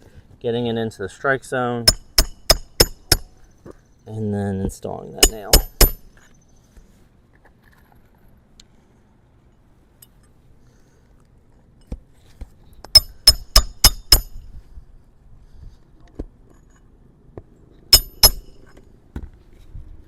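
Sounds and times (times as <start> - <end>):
hammer striking metal tool: 1.8 - 3.4, 5.2 - 6.1, 12.9 - 14.4, 17.9 - 18.7.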